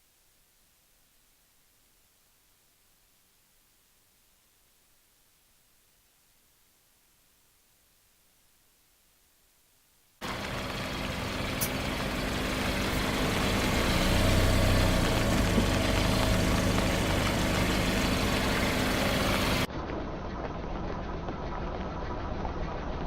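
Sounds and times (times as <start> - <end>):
car engine running: 10.2 - 19.7
dull engine sound: 10.2 - 23.0.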